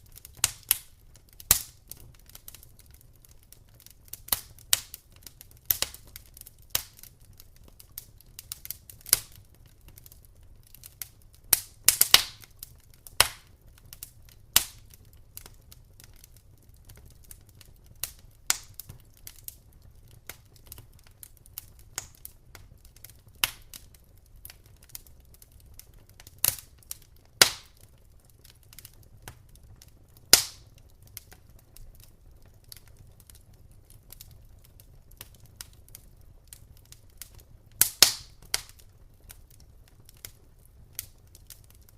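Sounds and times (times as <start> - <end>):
wood fire crackling: 0.0 - 41.9.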